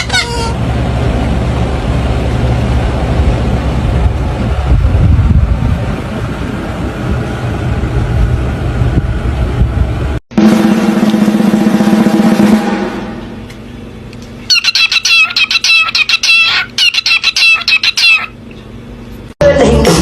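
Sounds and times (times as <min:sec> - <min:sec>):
loud pitched drone: 0:10.1 - 0:18.3
high wavering bird calls: 0:14.4 - 0:18.8.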